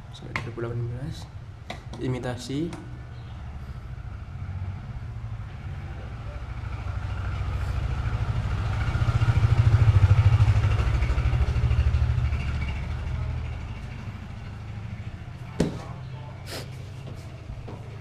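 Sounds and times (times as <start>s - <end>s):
engine running with pulsing note: 3.0s - 16.4s.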